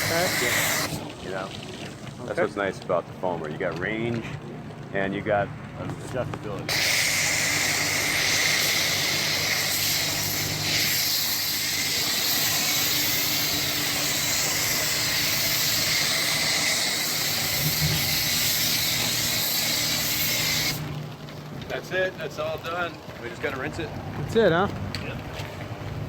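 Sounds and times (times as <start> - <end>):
foam cannon spraying hiss: 0.0 - 1.0, 6.7 - 20.9.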